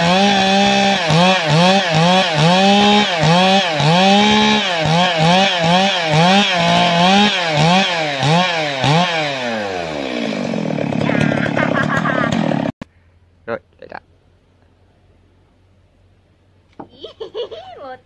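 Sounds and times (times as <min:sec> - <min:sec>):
chainsaw cutting wood: 0:00.0 - 0:12.8.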